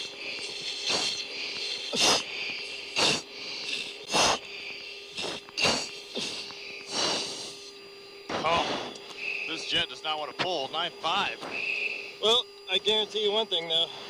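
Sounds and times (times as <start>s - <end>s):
forceful hissing breaths through mask: 0.0s - 7.8s, 8.4s - 9.6s, 11.4s - 12.2s
intercom hiss and hum: 0.0s - 14.0s.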